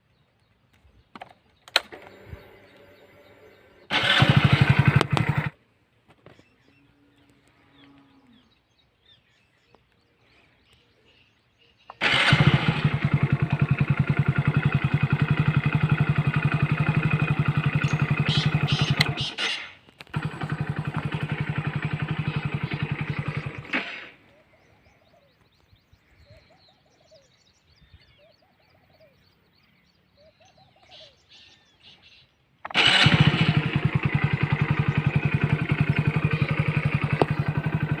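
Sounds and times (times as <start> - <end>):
motorcycle engine starting and idling: 1.0 - 5.6, 11.9 - 24.4, 32.6 - 38.0
faint bird chirps: 6.2 - 12.0, 22.0 - 32.6.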